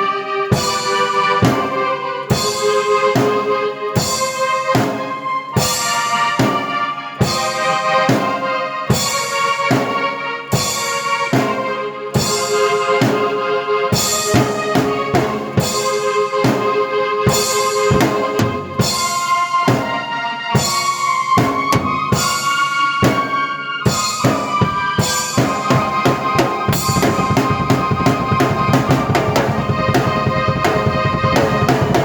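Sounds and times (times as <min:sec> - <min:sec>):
keyboard chords: 0:13.2 - 0:32.0
rock drum beat: 0:14.0 - 0:16.7, 0:17.3 - 0:20.0, 0:20.6 - 0:23.3, 0:23.9 - 0:32.0.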